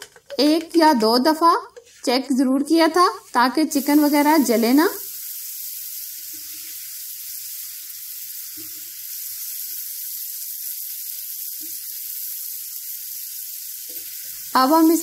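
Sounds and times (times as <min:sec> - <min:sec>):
food sizzling in oil: 0:00.5 - 0:15.0.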